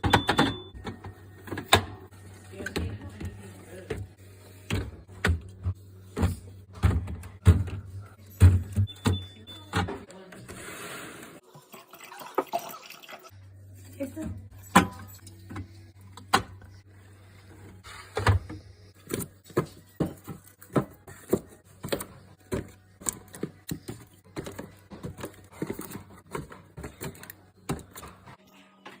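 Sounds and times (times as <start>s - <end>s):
items set down on fridge shelves: 4.6s - 10.6s, 17.6s - 28.4s.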